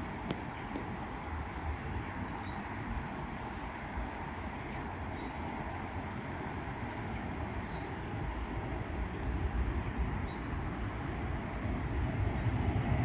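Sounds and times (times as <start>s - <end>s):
distant jet engines rumbling: 0.0s - 13.0s.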